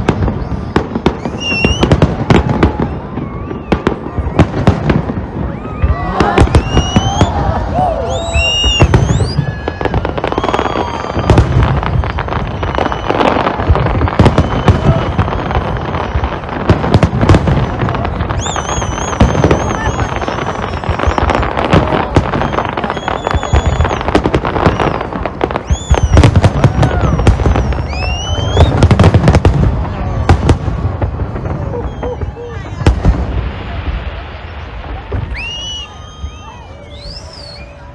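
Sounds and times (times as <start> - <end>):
fireworks bangs and crackles: 0.0 - 37.9
fireworks whistling: 0.0 - 37.9.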